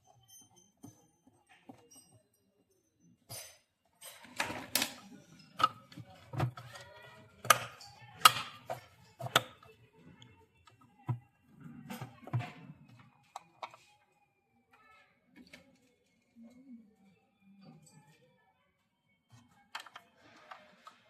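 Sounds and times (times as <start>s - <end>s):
plastic parts clicking and knocking: 3.3s - 13.9s, 19.3s - 21.0s.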